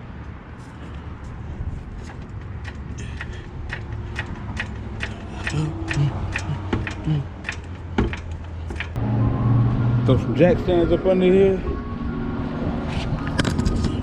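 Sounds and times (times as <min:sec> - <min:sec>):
sharp mechanical clicks: 0:02.1 - 0:09.0.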